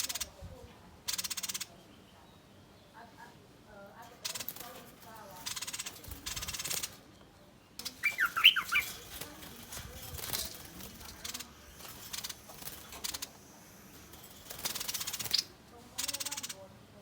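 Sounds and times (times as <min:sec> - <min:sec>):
bird chirping: 0:05.3 - 0:16.7
bird rasping scolding call: 0:07.9 - 0:09.2.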